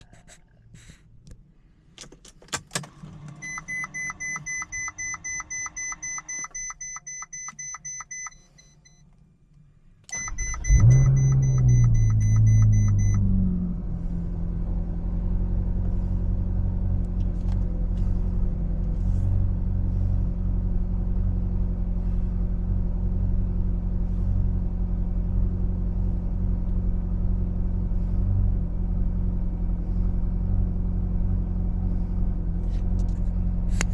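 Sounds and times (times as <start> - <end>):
car engine starting and revving: 2.6 - 6.2, 10.1 - 33.9
dashboard warning chime beeping: 3.4 - 9.1, 10.1 - 13.3
car engine idling: 9.2 - 33.9.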